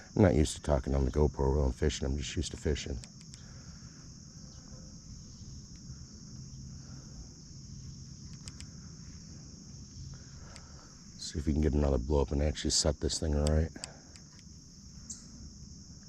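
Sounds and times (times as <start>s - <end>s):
insect chorus trilling: 0.0s - 16.0s
faint clicks: 2.9s - 3.5s, 8.2s - 8.8s, 10.4s - 10.8s, 13.4s - 14.5s.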